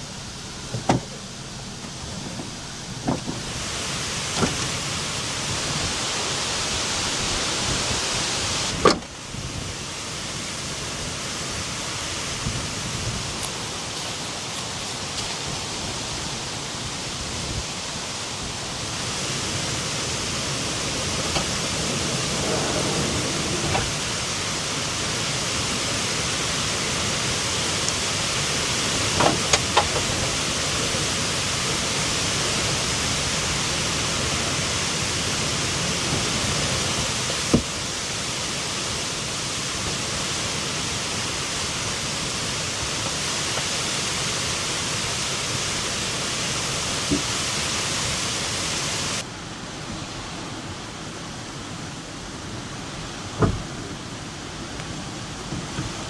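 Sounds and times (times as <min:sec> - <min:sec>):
strong wind rushing: 0:18.5 - 0:26.8.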